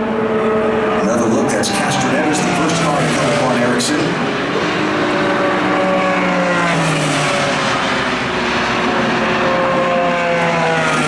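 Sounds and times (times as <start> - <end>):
race car engines running: 0.0 - 11.0.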